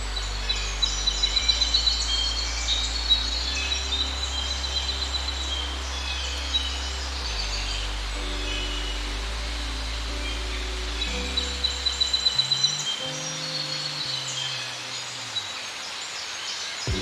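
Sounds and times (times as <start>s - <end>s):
forest birds chirping: 0.0s - 17.0s.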